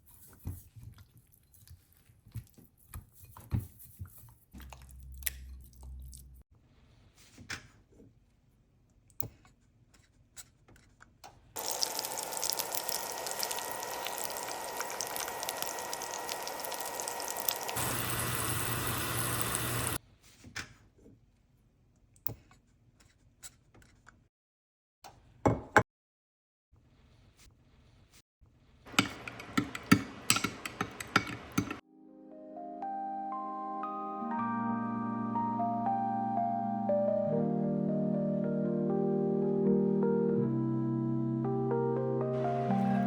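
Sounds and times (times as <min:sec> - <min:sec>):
kitchen tap running: 0:11.6 - 0:20.0, 0:28.9 - 0:31.8
kitchen utensils clicking and knocking: 0:28.9 - 0:31.8.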